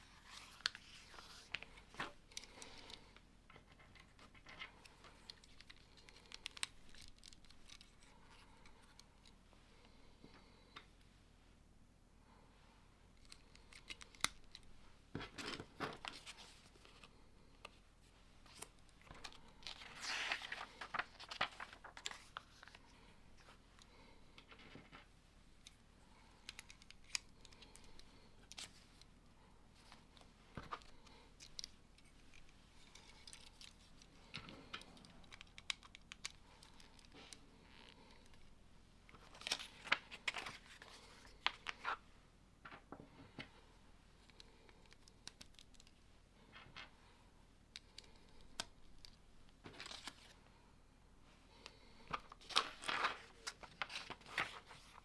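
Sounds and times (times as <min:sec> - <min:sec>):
rustling: 0:18.0 - 0:25.8.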